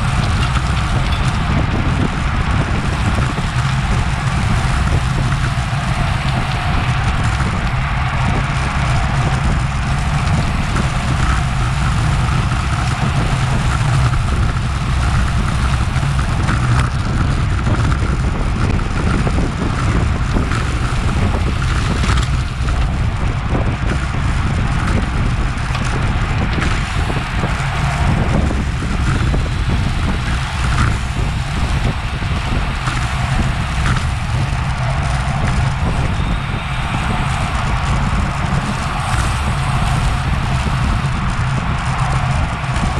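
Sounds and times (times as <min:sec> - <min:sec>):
road and tyre hum: 0:00.0 - 0:42.9
wind rushing over microphone: 0:00.0 - 0:42.9.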